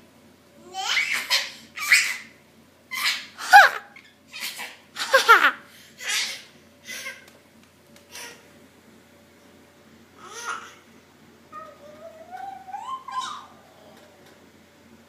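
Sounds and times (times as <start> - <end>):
baby laughing: 2.9 - 7.3, 10.2 - 10.8, 11.6 - 14.0.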